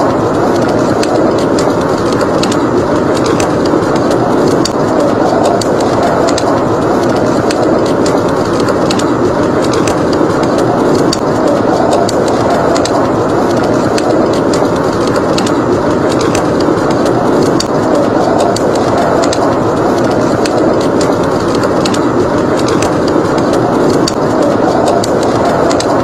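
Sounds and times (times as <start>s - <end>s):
blizzard wind blowing: 0.0s - 26.0s
wood fire crackling: 0.0s - 26.0s.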